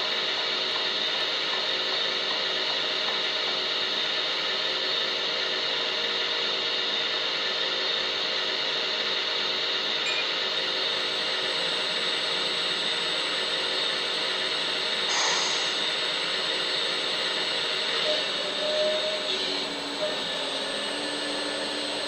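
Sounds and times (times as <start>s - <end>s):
toy excavator motor whirring: 9.8s - 22.0s.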